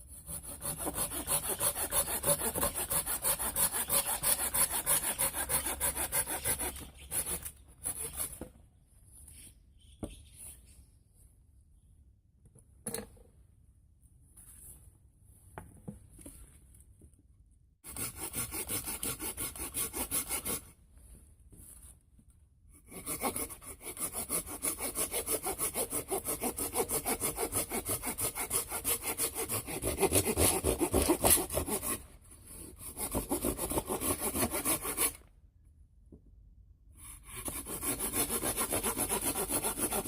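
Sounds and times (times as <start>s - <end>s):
hand saw cutting wood: 0.0s - 8.4s, 17.8s - 20.8s, 22.8s - 35.3s, 37.0s - 40.0s.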